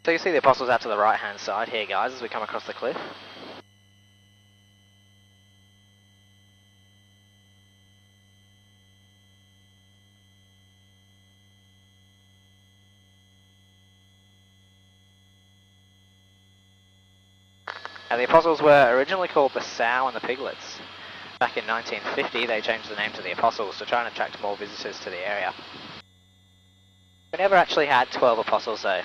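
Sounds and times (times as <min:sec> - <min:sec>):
open microphone noise: 0:00.0 - 0:03.6, 0:17.7 - 0:26.1, 0:27.4 - 0:29.0.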